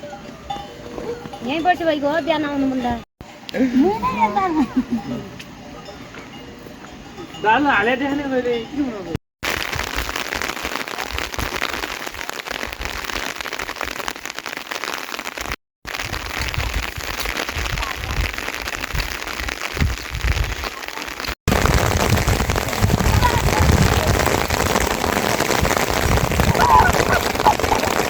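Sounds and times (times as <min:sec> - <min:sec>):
rain falling: 0:09.4 - 0:28.0.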